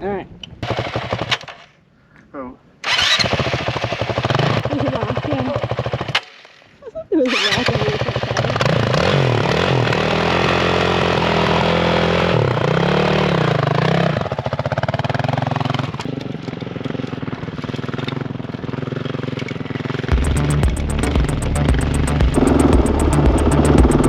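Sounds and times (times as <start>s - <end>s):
dirt bike engine revving: 2.9s - 6.4s, 7.3s - 16.2s, 17.9s - 24.0s.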